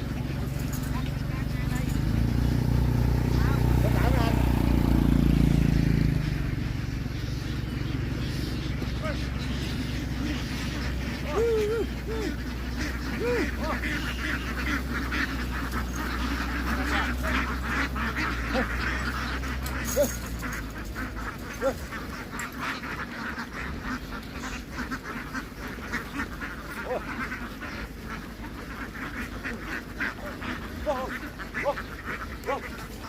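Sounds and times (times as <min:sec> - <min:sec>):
ducks quacking: 0:00.0 - 0:33.0.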